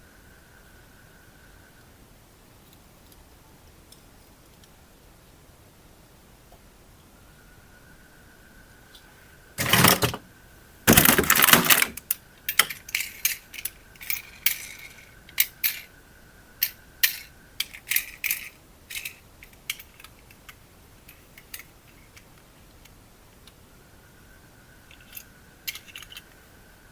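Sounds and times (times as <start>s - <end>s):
plastic objects scraping: 9.6s - 10.2s, 10.9s - 12.0s.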